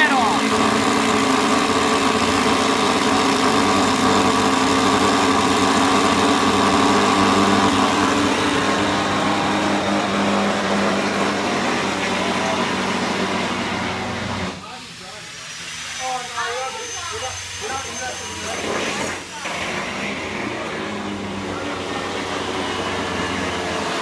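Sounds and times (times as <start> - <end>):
motor humming: 0.0 - 14.6.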